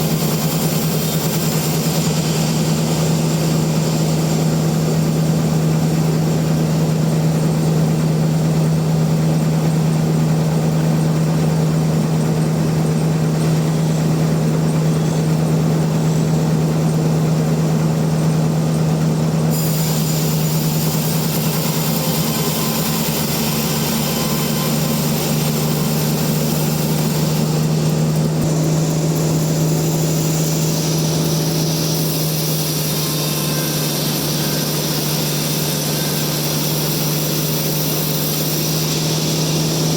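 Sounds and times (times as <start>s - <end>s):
sawmill machinery humming: 0.0s - 39.9s
high hiss: 19.5s - 39.9s.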